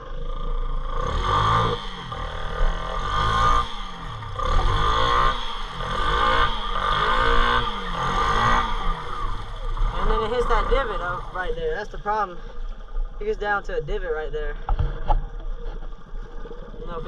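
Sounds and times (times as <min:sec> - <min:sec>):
motorbike engine revving: 0:00.0 - 0:12.2
motorbike pushed through floodwater: 0:00.0 - 0:12.2.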